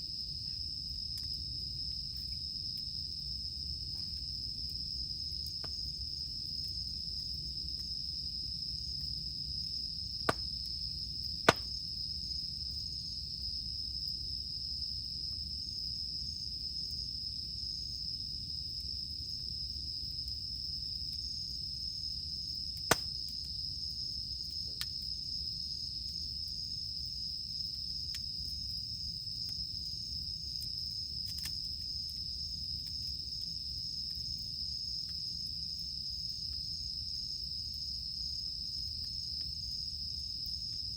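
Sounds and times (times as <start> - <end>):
cicadas droning: 0.0 - 40.9
campfire burning and popping: 8.8 - 12.0, 22.4 - 23.6, 27.7 - 34.3.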